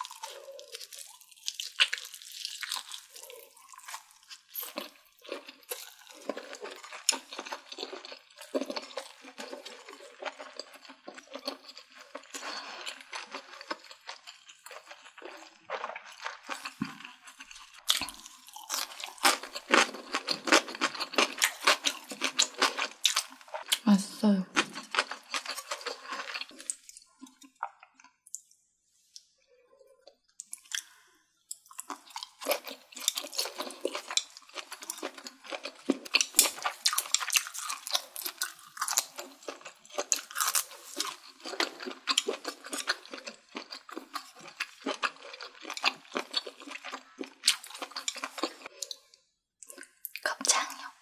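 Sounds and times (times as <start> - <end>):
person crunching leafy greens: 31.8 - 48.8.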